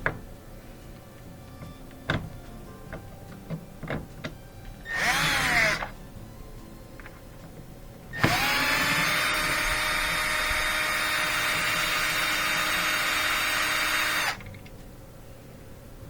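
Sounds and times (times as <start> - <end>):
cordless driver motor spinning: 4.9 - 5.9, 8.2 - 14.5.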